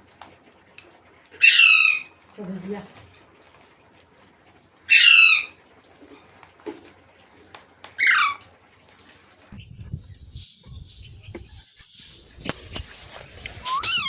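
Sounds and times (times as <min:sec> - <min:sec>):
parrot harsh calls: 0:01.4 - 0:02.1, 0:04.9 - 0:05.6, 0:08.0 - 0:08.4, 0:13.6 - 0:14.0.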